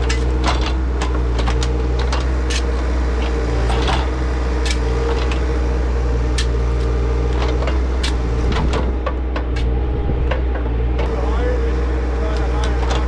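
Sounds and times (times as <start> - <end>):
diesel engine running: 0.0 - 13.0
machine knocks and clanks: 7.3 - 11.1.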